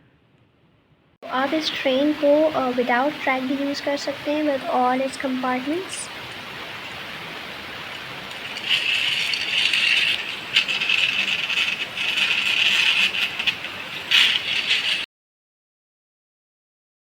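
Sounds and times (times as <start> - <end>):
toy train rattling and whirring: 7.9 - 15.1.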